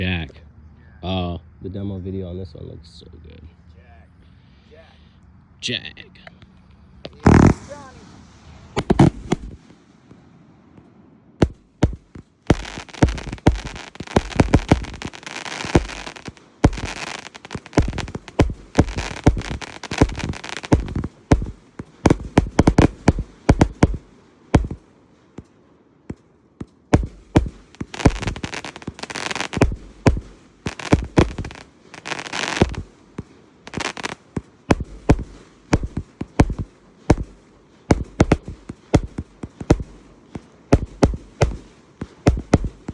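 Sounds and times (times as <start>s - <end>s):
firework volleys: 7.1s - 9.8s, 11.4s - 24.8s, 26.9s - 42.9s.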